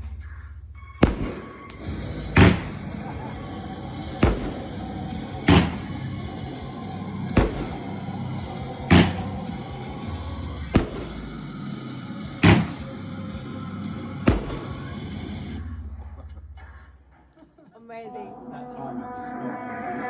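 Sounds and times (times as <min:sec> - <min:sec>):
fireworks bangs: 0:00.0 - 0:13.2, 0:14.2 - 0:15.6
background music: 0:00.0 - 0:17.1, 0:17.8 - 0:20.0.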